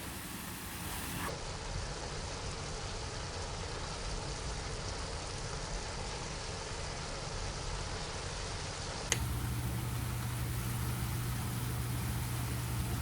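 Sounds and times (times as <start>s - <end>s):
food sizzling in a pan: 9.2s - 13.0s.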